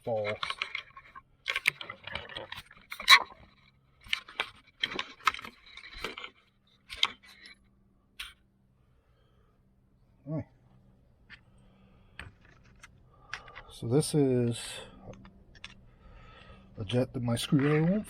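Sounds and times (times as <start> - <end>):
small metal parts clinking: 0.0 - 7.6.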